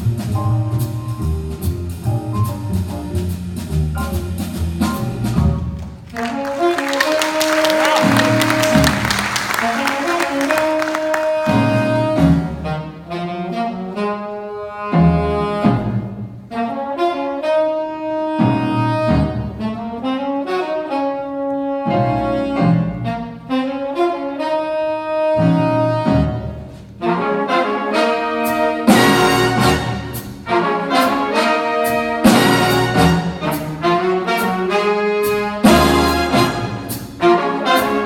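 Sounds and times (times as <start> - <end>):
drums: 0.0 - 13.1, 27.9 - 38.0
bass: 0.0 - 17.3, 18.1 - 20.4, 21.7 - 27.3, 28.2 - 38.0
saxophones and brass: 6.1 - 38.0.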